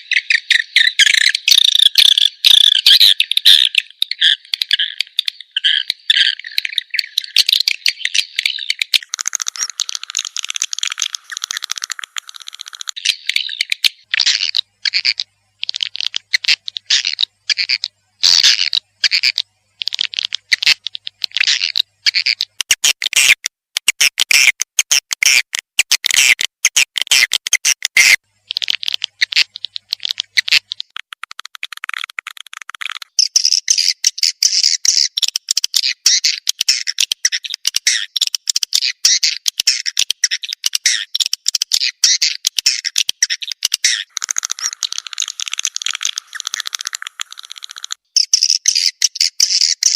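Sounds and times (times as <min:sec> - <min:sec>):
swiftlet calls chittering: 0:00.0 - 0:22.5, 0:41.8 - 0:49.9.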